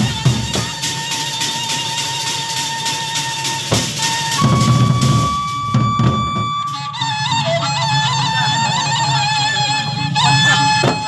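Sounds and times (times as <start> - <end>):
sharp drum strokes: 0.0 - 6.8
reedy wind instrument melody: 0.0 - 11.0.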